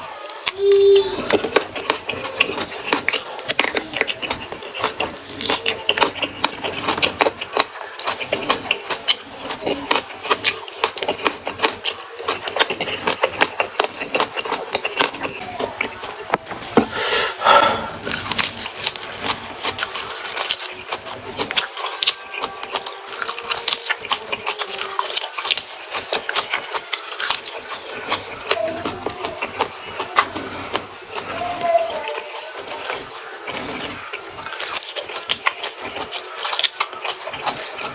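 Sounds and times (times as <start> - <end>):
crunching raw vegetables: 0.0 - 37.9
wet chewing clicks: 0.0 - 37.9
voice-like mouth sound: 12.8 - 19.7.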